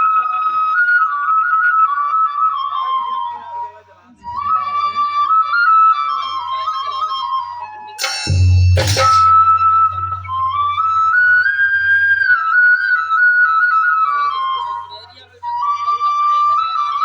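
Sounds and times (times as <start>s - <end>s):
loud percussive strike: 8.0s - 12.2s
flute playing slow melody: 9.2s - 17.0s.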